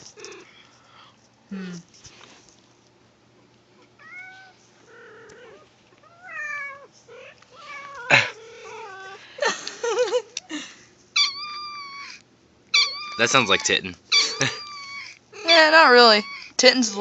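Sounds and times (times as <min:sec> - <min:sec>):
kitten meowing: 0:11.2 - 0:16.6.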